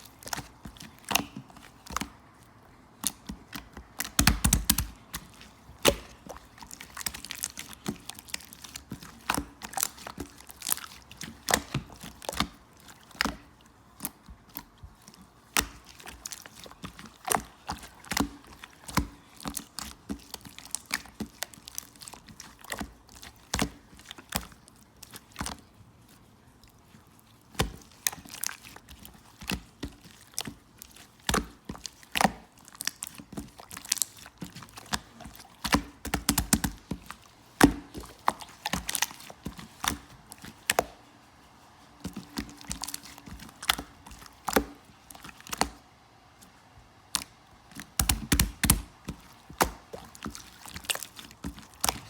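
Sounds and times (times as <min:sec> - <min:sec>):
slime clicking and popping: 0:03.0 - 0:13.4, 0:15.5 - 0:24.5, 0:31.2 - 0:40.9, 0:47.1 - 0:52.0.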